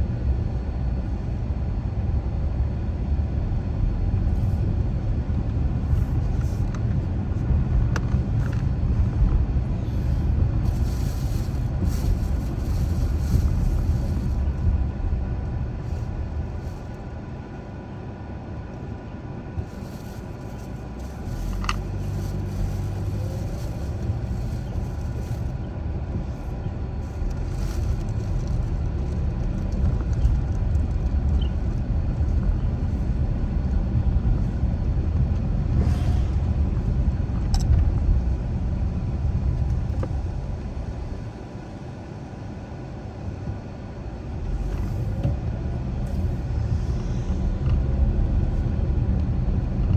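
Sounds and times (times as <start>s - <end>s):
car driving by: 35.7s - 36.8s.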